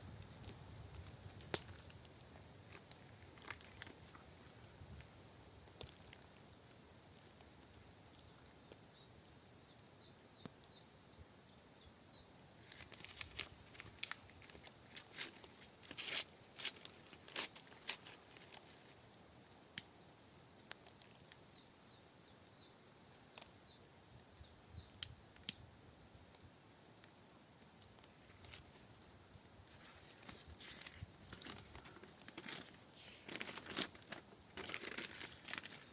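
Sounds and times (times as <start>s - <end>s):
rustling and crinkling: 0.0s - 8.2s, 12.6s - 19.2s, 27.8s - 35.9s
sharp crackling clicks: 0.2s - 4.2s, 5.0s - 6.5s, 19.8s - 21.4s, 24.8s - 25.6s, 31.3s - 35.9s.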